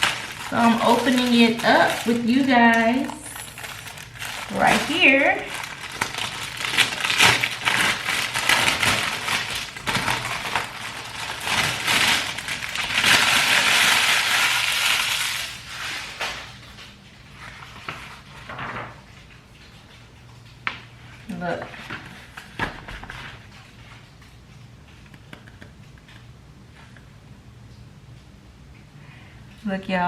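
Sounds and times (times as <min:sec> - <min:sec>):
plastic packaging crinkling: 0:00.0 - 0:19.7.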